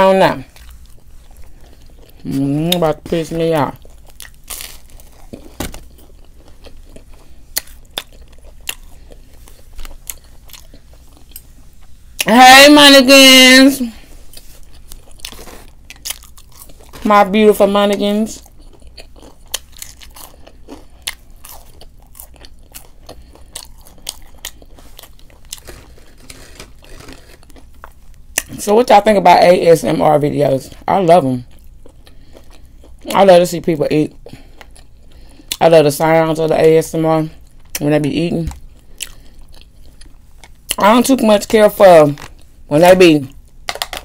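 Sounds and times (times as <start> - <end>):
person chewing food: 0.4 - 2.9, 3.6 - 12.3, 14.0 - 17.1, 17.8 - 28.6, 31.4 - 33.2, 34.1 - 35.6, 37.4 - 37.8, 38.5 - 40.8
crunchy bites: 3.8 - 10.9, 14.6 - 17.1, 18.4 - 28.6.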